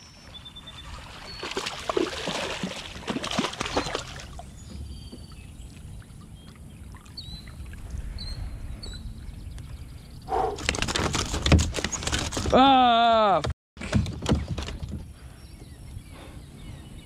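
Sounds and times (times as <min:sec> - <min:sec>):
water splashing around kayak: 0:00.1 - 0:08.2
low rumble: 0:07.4 - 0:10.6.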